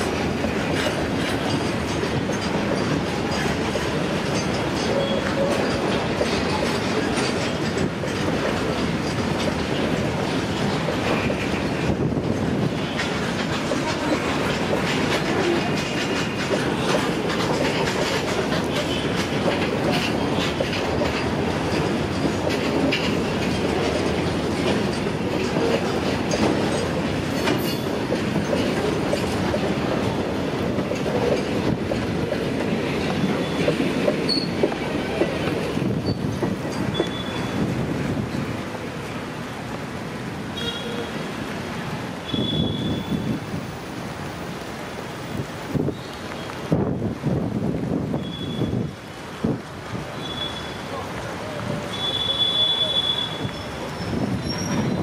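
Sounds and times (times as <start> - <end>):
freight train wheels clattering: 0.0 - 55.0.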